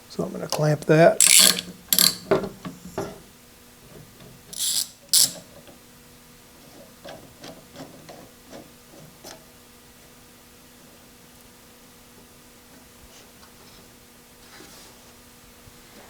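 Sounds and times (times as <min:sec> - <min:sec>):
clamp ratcheting: 0:01.2 - 0:02.5, 0:04.5 - 0:05.5.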